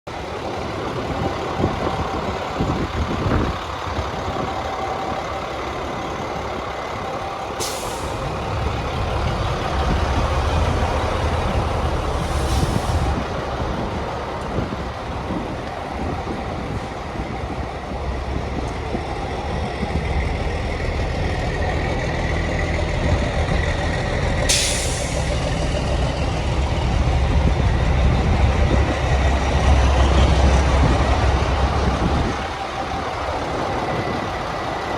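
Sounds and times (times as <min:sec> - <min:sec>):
diesel truck engine running: 0:00.1 - 0:34.9
air brake hisses: 0:07.6 - 0:08.3, 0:12.1 - 0:13.2, 0:24.5 - 0:25.4.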